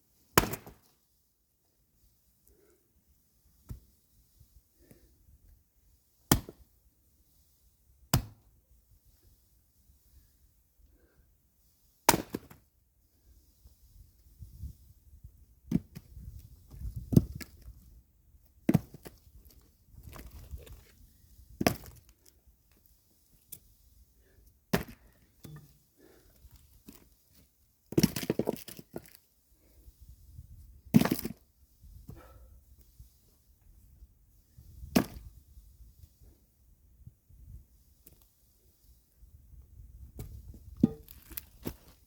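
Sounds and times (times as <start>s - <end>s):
axe splitting firewood: 0.4s - 0.9s, 6.3s - 6.6s, 8.1s - 8.4s, 12.1s - 12.6s, 21.5s - 22.1s, 24.7s - 25.8s, 27.9s - 29.1s, 30.9s - 31.4s, 40.3s - 41.8s.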